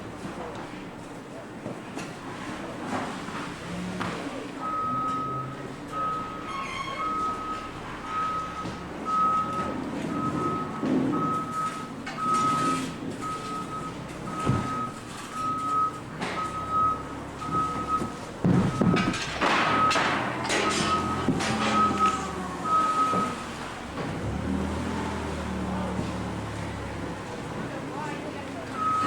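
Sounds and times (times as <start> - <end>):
machinery rumble and clatter: 0.0 - 29.0
backup alarm beeping: 4.6 - 23.6, 28.7 - 29.0.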